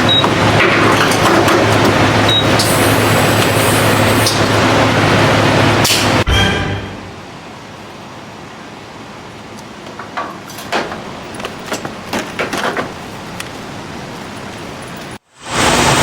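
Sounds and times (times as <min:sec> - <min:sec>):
background hum: 0:09.2 - 0:15.2.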